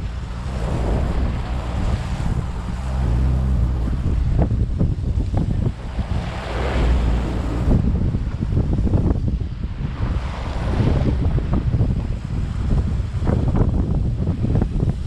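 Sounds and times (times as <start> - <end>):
sea wash: 0.0 - 8.0
boat engine hum: 0.0 - 8.1
wind buffeting microphone: 0.0 - 15.0.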